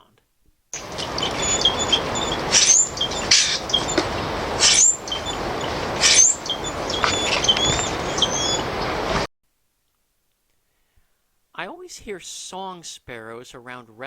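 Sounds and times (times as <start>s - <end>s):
bird chip notes: 0.8s - 9.1s
grackle harsh squeaks: 0.8s - 9.2s.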